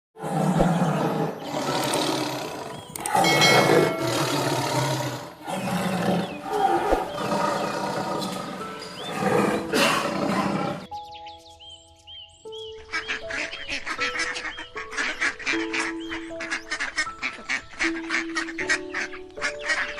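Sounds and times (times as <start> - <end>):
large animal roaring: 0.2 - 10.9.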